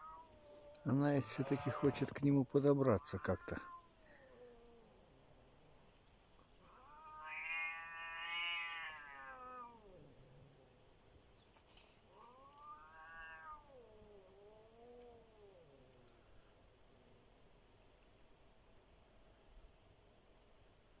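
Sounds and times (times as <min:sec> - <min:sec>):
cat yowling: 0:00.0 - 0:02.1, 0:03.0 - 0:04.9, 0:06.6 - 0:10.0, 0:12.2 - 0:15.8.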